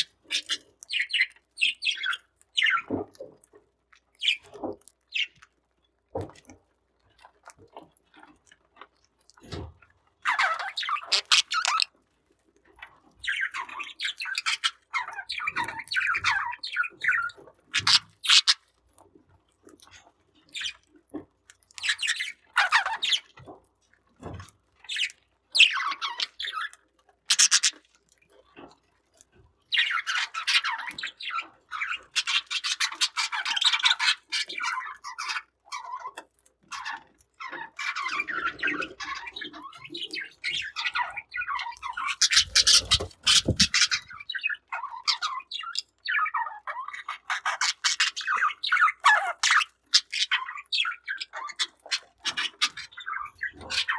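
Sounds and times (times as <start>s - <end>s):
budgerigars chirping: 10.3s - 11.9s, 13.3s - 18.6s, 27.3s - 27.7s, 37.9s - 46.3s, 47.3s - 53.9s.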